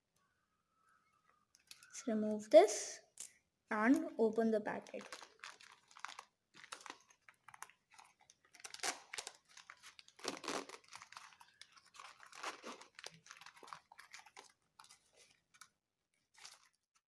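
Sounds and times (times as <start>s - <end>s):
packaging crinkling and tearing: 4.8s - 15.7s, 16.3s - 16.8s.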